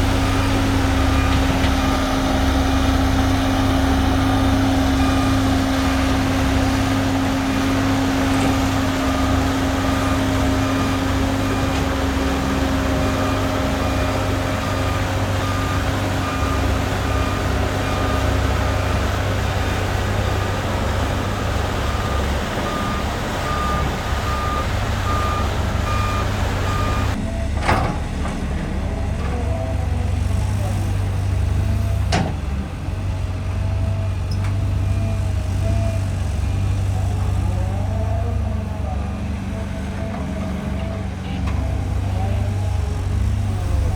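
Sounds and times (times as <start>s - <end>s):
diesel machinery running: 0.0s - 43.9s
reversing alarm beeps: 21.3s - 27.6s.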